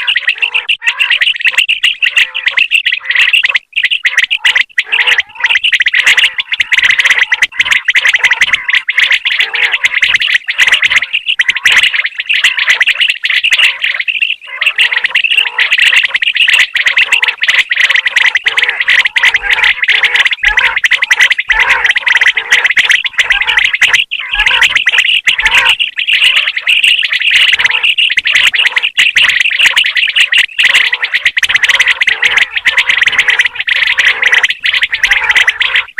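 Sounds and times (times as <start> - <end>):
quail calling with rapid chirps: 0.0 - 35.9.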